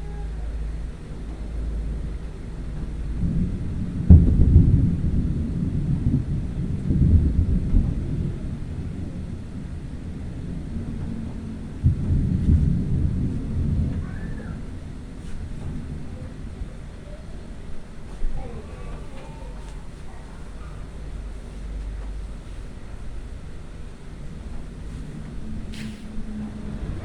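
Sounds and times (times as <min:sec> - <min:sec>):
thunder rumbling: 0:00.0 - 0:27.0
sharp thunder crack: 0:01.8 - 0:18.4.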